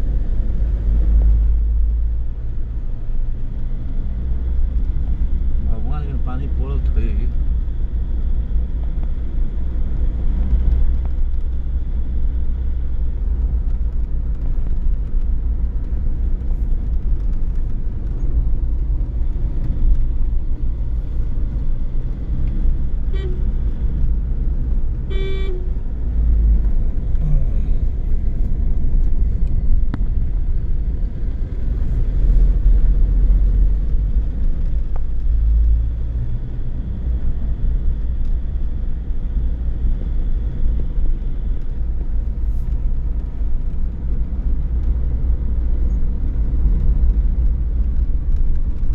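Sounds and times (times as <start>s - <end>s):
car road rumble: 0.0s - 48.9s
car horn toot: 23.1s - 23.5s, 25.1s - 25.7s.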